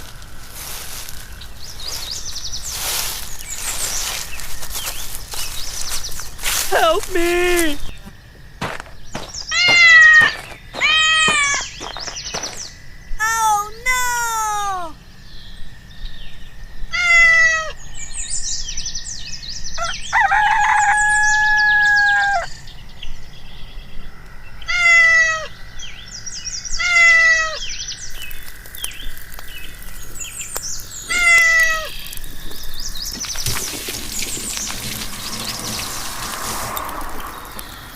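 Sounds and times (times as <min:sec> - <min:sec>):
high bird chirps: 0:08.9 - 0:12.8
animal calls falling in pitch: 0:09.5 - 0:12.4, 0:31.1 - 0:32.2.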